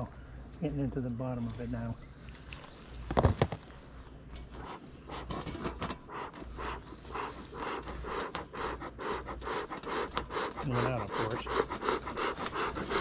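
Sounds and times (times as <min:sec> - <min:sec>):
smoker bellows puffing air: 0:04.4 - 0:13.0.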